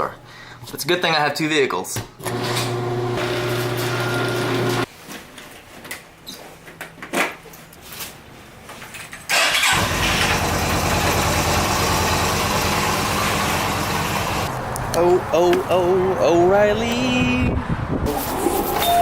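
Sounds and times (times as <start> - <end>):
car engine starting and running: 9.3 - 15.8.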